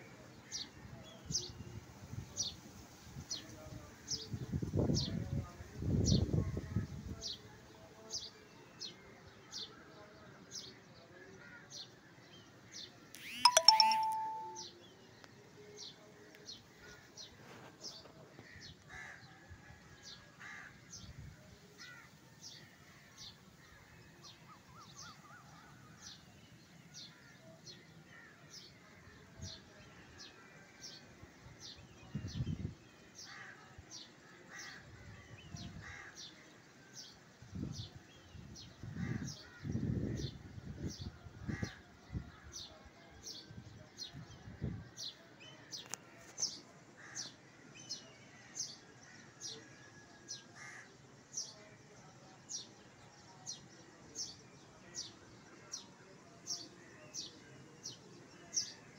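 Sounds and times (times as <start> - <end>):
bird chirping: 13.2 - 14.7
ringing chime: 13.2 - 14.7.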